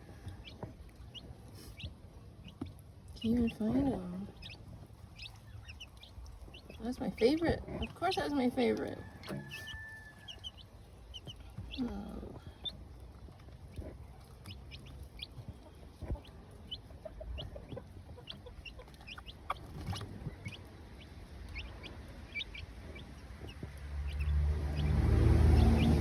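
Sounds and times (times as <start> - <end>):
chicks peeping: 0.0 - 26.0
hen clucking: 0.0 - 26.0
low rumbling noise: 19.2 - 26.0.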